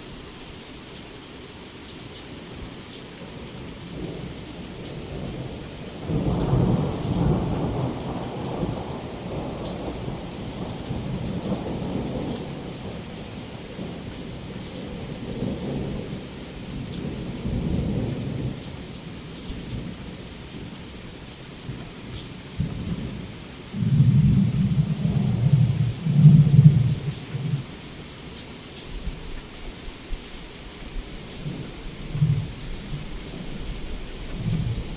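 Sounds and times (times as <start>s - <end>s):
heavy rain against a window: 0.0s - 34.9s
thunder rumbling: 4.9s - 20.8s, 21.7s - 27.8s, 31.4s - 34.9s.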